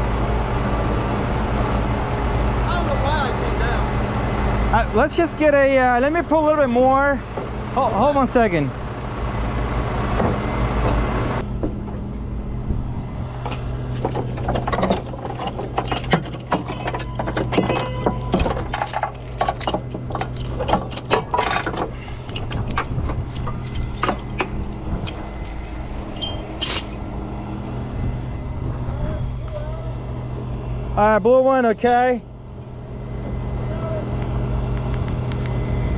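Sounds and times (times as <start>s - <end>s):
tow truck engine humming: 0.0s - 35.9s
metallic clinks and rattles: 13.9s - 27.1s.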